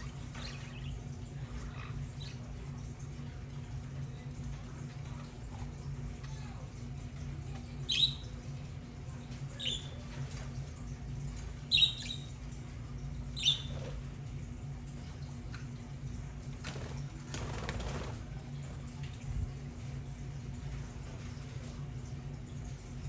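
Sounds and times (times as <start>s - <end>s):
budgerigars chirping: 11.7s - 12.3s, 13.4s - 13.9s
wings fluttering: 16.4s - 21.8s.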